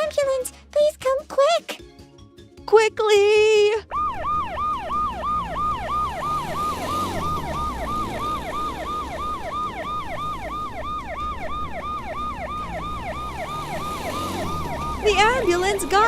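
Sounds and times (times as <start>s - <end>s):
ambulance siren yelp: 3.9s - 16.0s.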